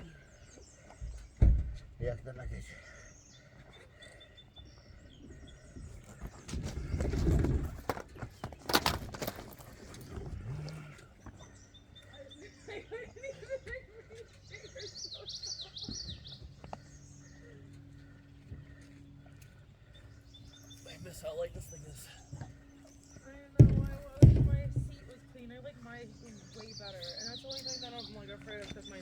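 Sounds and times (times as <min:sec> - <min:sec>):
small birds chirping: 0:00.0 - 0:29.0
handling rustling: 0:06.2 - 0:10.5
sharp knocks: 0:23.6 - 0:25.1.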